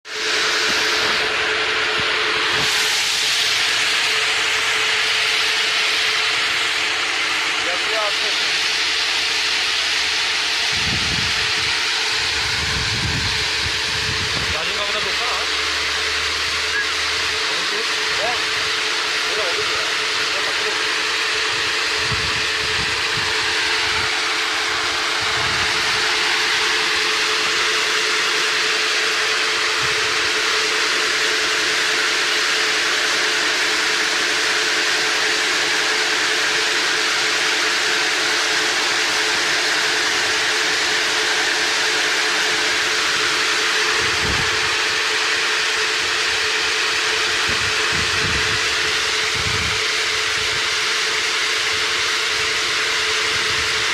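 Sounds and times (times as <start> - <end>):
hulling machine humming and hissing: 0.0 - 53.9.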